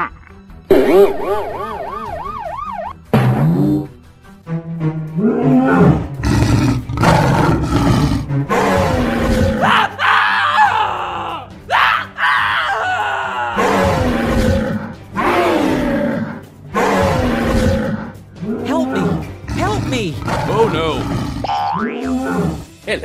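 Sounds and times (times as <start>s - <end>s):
dinosaur roars: 5.2s - 9.8s, 13.5s - 22.7s.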